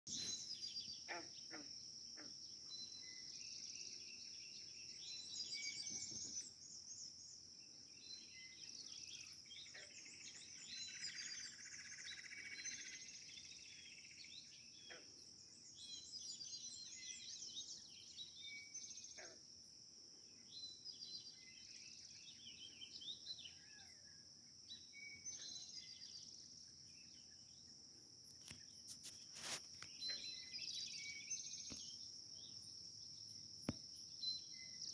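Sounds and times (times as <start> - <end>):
frog calling: 1.1 - 2.4
birds chirping and singing: 2.7 - 7.4.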